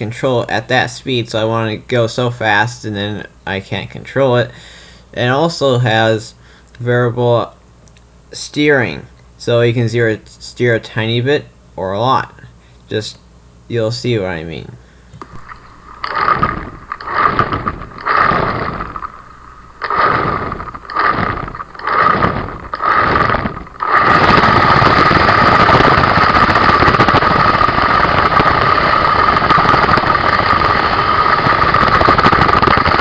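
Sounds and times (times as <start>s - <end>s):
electric motor and gears whining: 15.2s - 33.0s.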